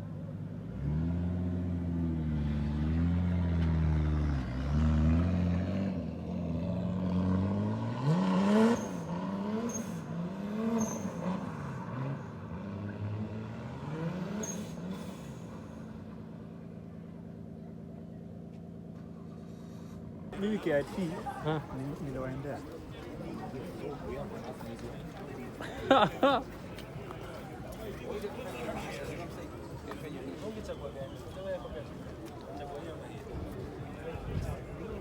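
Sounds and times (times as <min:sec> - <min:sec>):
car engine revving: 0:00.7 - 0:15.9.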